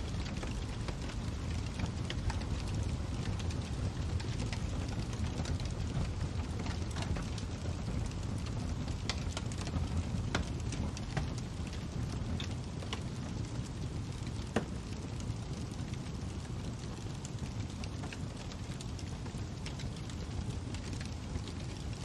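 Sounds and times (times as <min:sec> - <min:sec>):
fire crackling and popping: 0:00.0 - 0:22.0.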